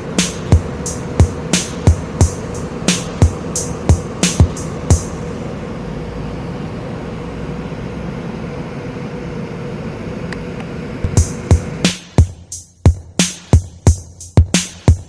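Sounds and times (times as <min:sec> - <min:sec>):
drum machine beats: 0:00.0 - 0:05.5, 0:11.0 - 0:15.0
refrigeration unit whirring: 0:00.0 - 0:12.4.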